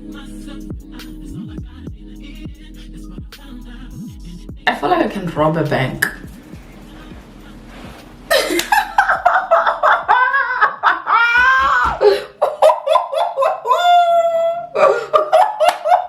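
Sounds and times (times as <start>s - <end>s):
woman laughing hard: 8.3s - 16.0s.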